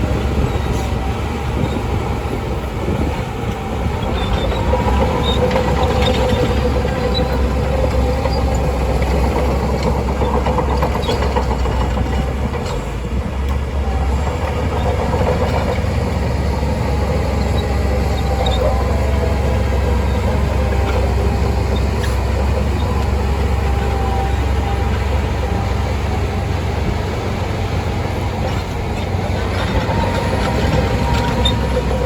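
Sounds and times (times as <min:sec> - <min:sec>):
bulldozer diesel engine running: 0:00.0 - 0:32.0
steel tracks clattering: 0:00.0 - 0:32.0.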